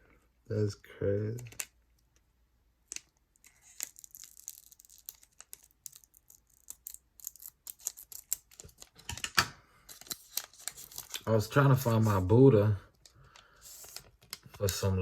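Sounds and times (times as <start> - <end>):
cards clicking and wrappers rustling: 2.9 - 12.3, 12.9 - 15.0.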